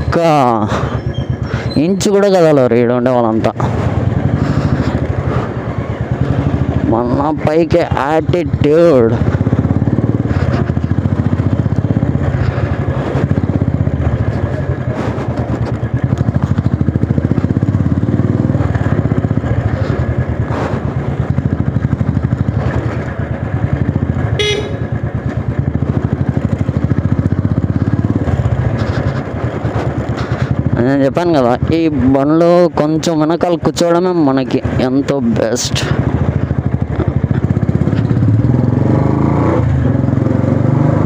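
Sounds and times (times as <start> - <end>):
motorcycle engine running: 0.0 - 41.0
horn toot: 24.3 - 25.0.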